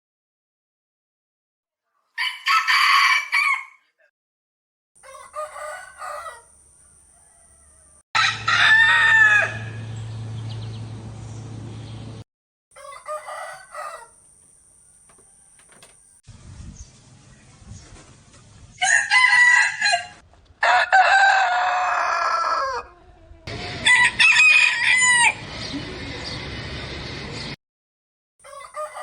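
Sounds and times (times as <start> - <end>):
rooster crowing: 2.2 - 3.8, 5.0 - 9.9, 12.8 - 14.2, 15.0 - 16.1, 18.8 - 25.4, 28.4 - 29.0.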